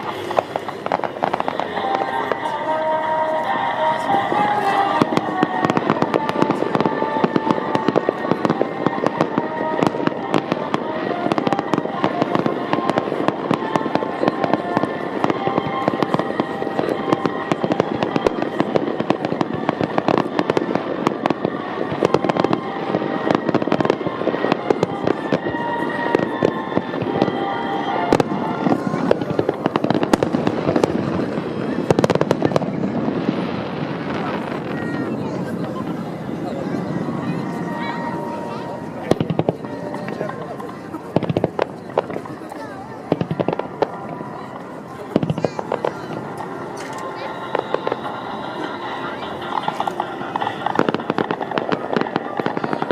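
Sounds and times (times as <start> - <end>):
music over loudspeakers: 0.0 - 32.6
fireworks bursting and crackling: 0.0 - 52.9.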